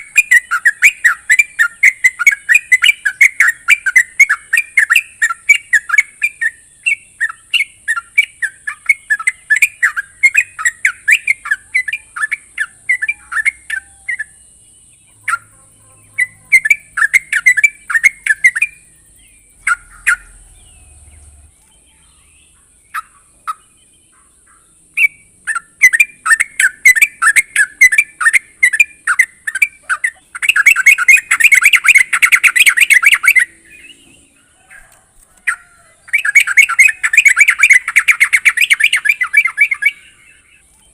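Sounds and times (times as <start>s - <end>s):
bird calling bubbling notes: 15.1s - 21.5s, 22.1s - 40.6s.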